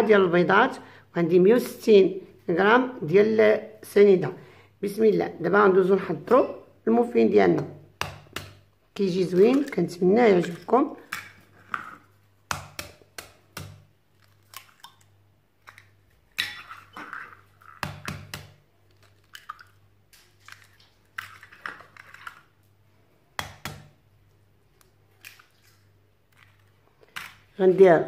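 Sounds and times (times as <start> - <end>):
bowls and utensils clattering: 15.7 - 18.0.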